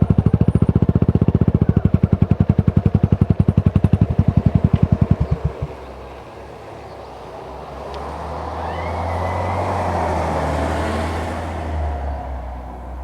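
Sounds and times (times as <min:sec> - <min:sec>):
motorcycle exhaust thumps: 0:00.0 - 0:06.2
passing vehicle road noise: 0:03.4 - 0:13.0.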